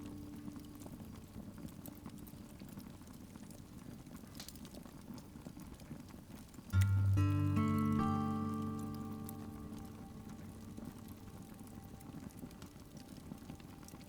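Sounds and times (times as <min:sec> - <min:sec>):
low hiss: 0:00.0 - 0:03.6, 0:06.7 - 0:14.0
fireplace logs crackling: 0:00.0 - 0:14.0.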